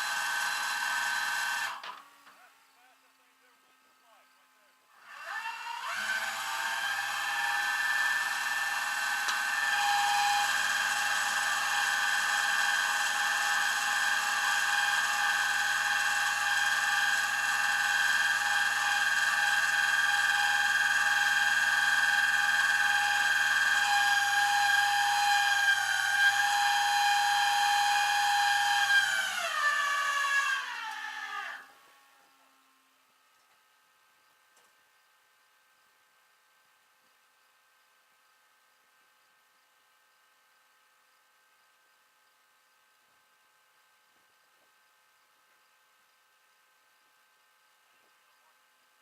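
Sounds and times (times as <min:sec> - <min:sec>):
motor whining: 0:05.0 - 0:32.0.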